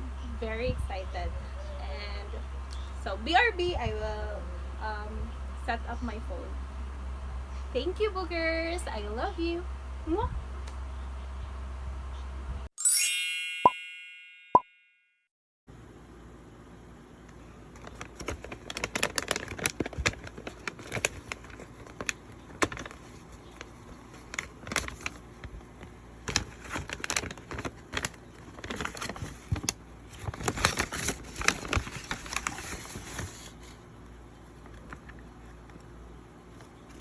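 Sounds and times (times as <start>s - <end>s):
crackling: 0.0s - 12.5s.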